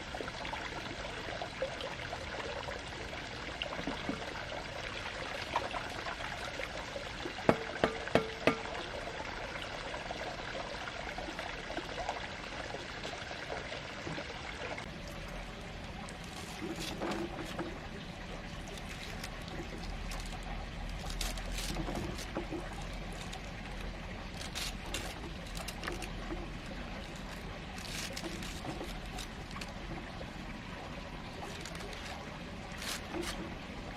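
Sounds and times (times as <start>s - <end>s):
water running: 10.8s - 33.9s.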